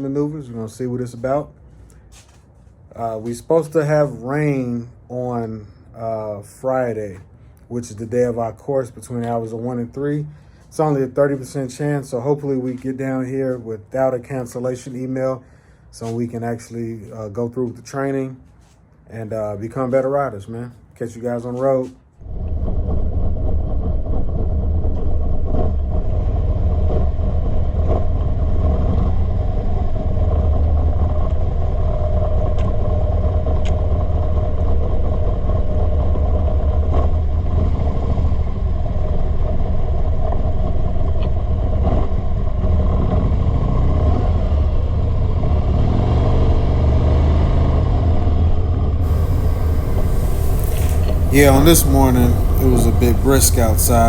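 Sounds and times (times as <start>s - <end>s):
road and wind noise: 22.2s - 54.0s
motorcycle engine drone: 47.6s - 54.0s.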